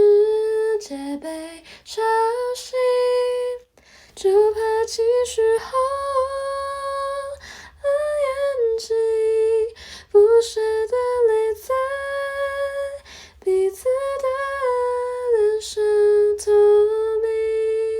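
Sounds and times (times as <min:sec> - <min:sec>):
woman singing unaccompanied: 0:00.0 - 0:17.9.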